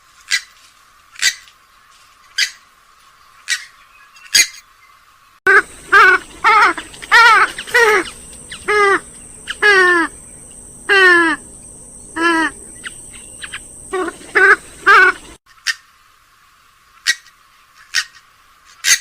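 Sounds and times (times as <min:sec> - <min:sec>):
faint steady hum: 0:05.5 - 0:15.4
gallinule ringing calls: 0:05.5 - 0:15.8.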